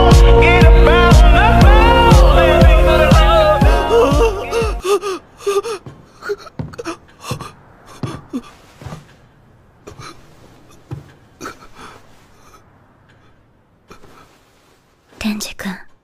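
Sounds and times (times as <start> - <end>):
person gasping and panting: 3.6 - 8.6.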